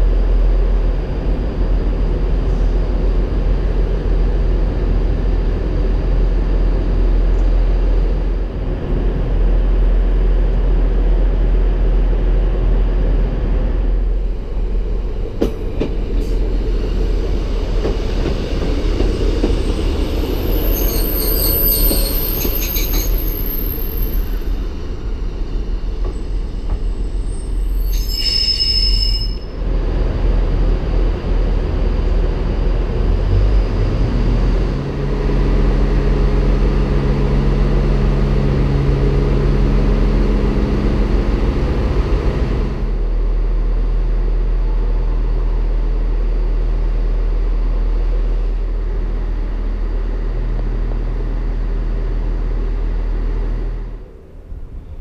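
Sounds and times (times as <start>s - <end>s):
low engine note: 0.0s - 27.9s, 29.5s - 55.0s
train rumble: 0.0s - 55.0s
train wheels squealing: 15.4s - 29.6s.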